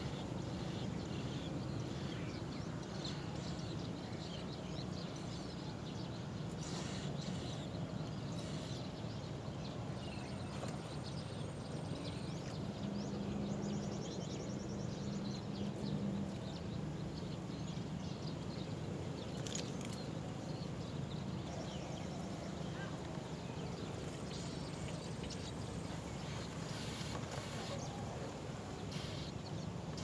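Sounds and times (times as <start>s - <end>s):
birds chirping: 18.1s - 30.0s.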